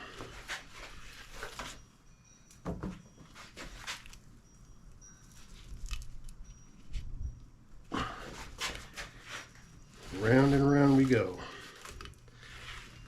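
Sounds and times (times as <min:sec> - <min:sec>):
twine rustling and knocking: 0:08.3 - 0:13.0.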